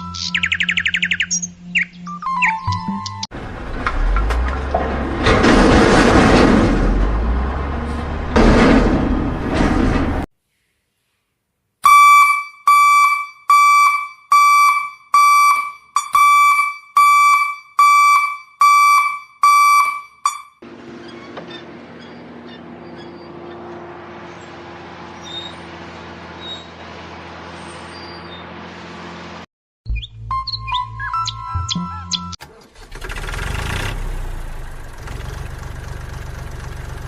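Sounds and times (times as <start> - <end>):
alarm-like beeping: 11.9 - 20.6.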